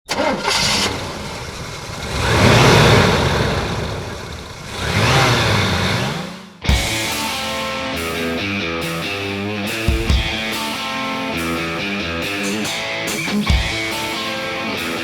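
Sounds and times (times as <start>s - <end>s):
monster truck engine revving: 0.0s - 6.6s.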